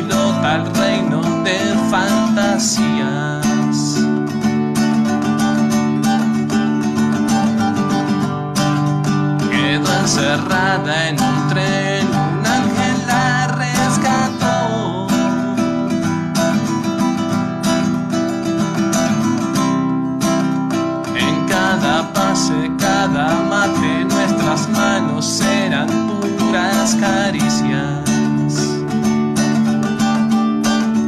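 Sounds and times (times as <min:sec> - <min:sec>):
acoustic guitar strummed and plucked: 0:00.0 - 0:31.0.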